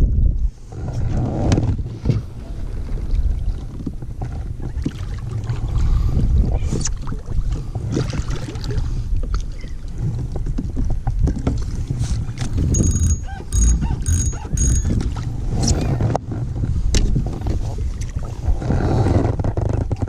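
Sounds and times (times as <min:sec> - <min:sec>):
wind and water rumble: 0:00.0 - 0:20.0
gear knocking on kayak: 0:12.4 - 0:15.2
short high chirps: 0:12.7 - 0:15.0.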